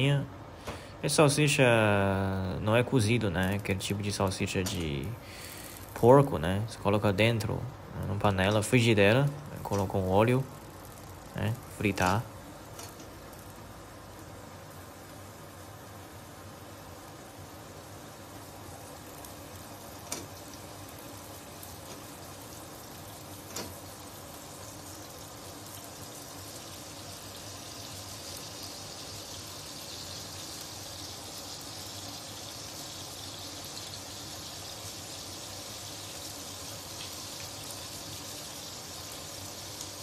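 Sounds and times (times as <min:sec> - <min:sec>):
sausage sizzling in oil: 0:08.2 - 0:40.0.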